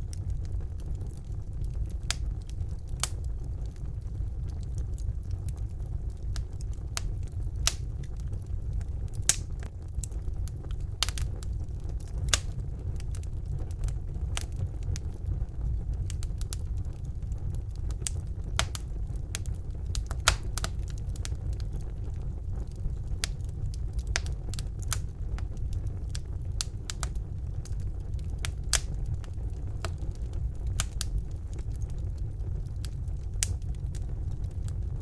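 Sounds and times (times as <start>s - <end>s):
wood fire crackling and popping: 0.0s - 35.0s.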